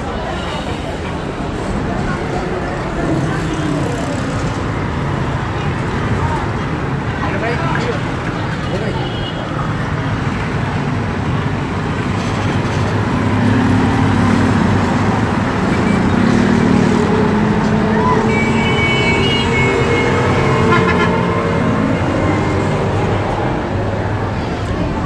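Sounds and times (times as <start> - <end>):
road traffic: 0.0 - 25.0
horn tooting: 17.9 - 23.1.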